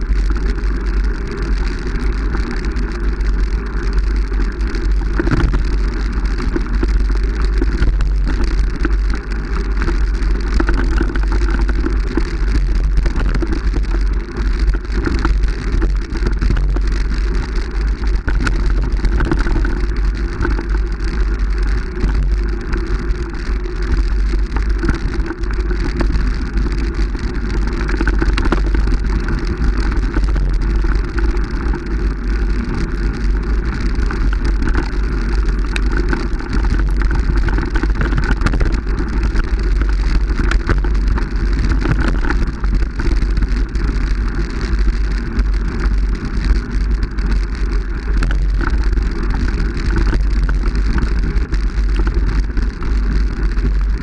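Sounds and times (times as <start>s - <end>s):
wind rumble on microphone: 0.0s - 54.0s.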